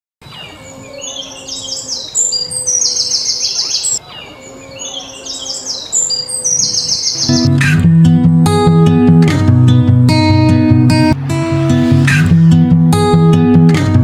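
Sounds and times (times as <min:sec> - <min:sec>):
songbird singing: 0:00.2 - 0:07.6.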